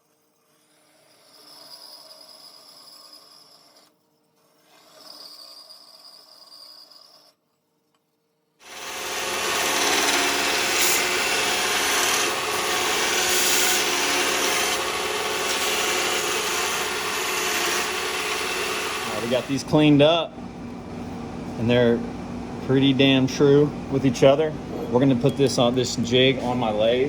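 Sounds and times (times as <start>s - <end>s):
grinder scraping metal: 0.0s - 7.4s, 8.6s - 20.2s
metal grinding: 8.6s - 20.2s.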